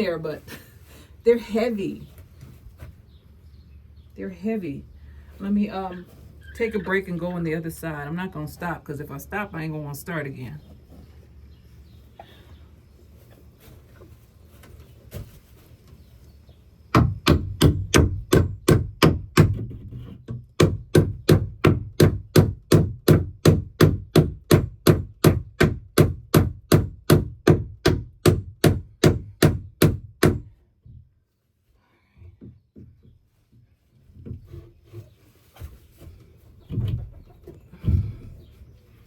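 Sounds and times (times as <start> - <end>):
hammer striking wood: 16.9 - 19.8, 20.6 - 30.5.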